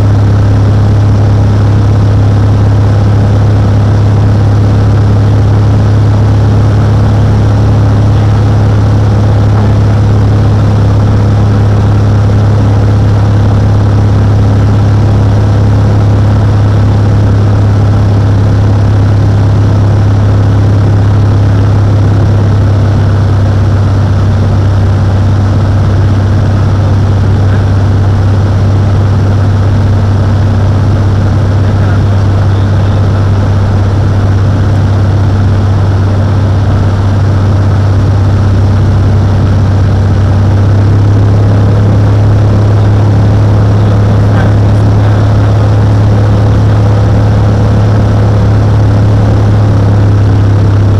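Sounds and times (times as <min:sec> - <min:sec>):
propeller plane engine drone: 0:00.0 - 0:50.9.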